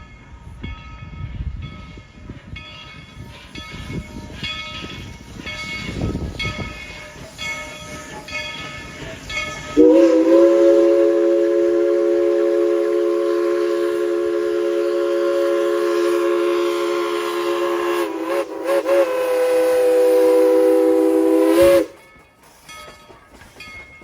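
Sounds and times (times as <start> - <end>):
train rumble and clatter: 0.0 - 24.0
locomotive bell ringing: 0.7 - 12.9, 21.6 - 24.0
steam whistle chord: 9.8 - 22.0.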